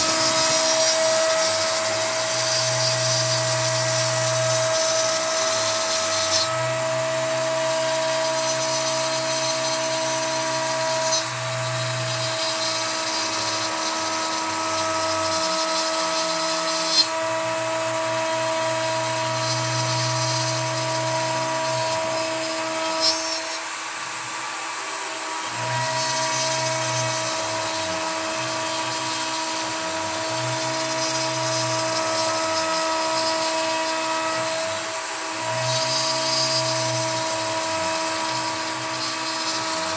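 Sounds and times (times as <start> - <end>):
router spindle high whine: 0.0 - 39.9
low motor tones: 17.0 - 39.9.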